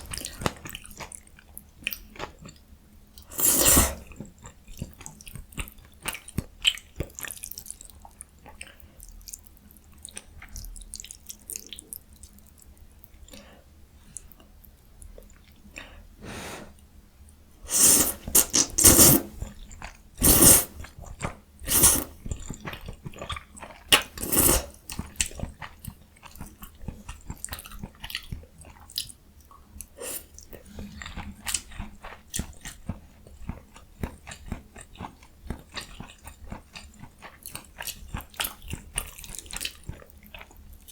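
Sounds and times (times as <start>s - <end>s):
chewing and biting mouth sounds: 18.1s - 40.9s.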